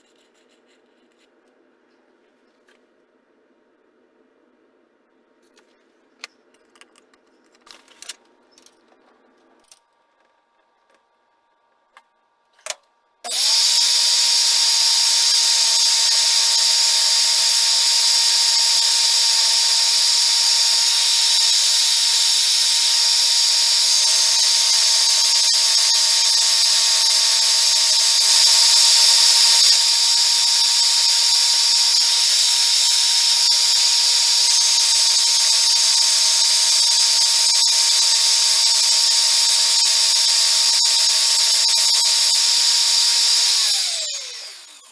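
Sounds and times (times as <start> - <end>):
machine tool whining: 13.3 - 44.9.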